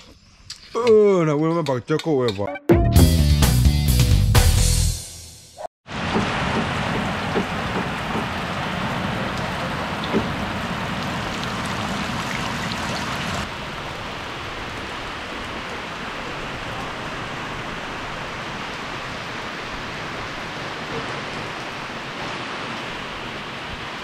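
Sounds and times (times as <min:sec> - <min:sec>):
heavy rain pouring: 0:05.9 - 0:24.0
rain splashing into buckets: 0:05.9 - 0:24.0.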